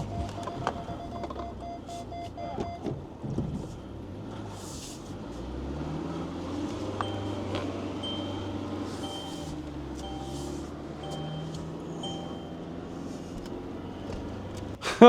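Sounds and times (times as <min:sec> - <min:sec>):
rapid electronic beeping: 0:00.0 - 0:02.8, 0:07.0 - 0:12.6
vehicle engine under load: 0:00.0 - 0:15.0.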